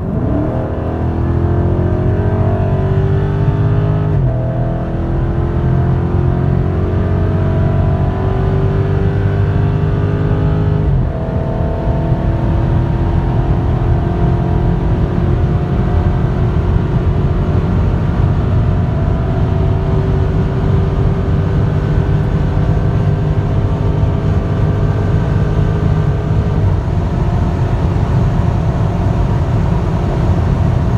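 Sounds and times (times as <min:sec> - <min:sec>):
car engine accelerating: 0:00.0 - 0:30.9
wind and road noise: 0:00.0 - 0:30.9.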